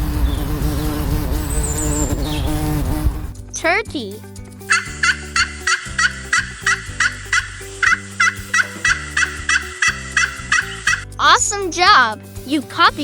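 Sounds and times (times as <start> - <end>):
soft background music: 1.9 - 13.0
turkey gobbling: 4.7 - 11.0.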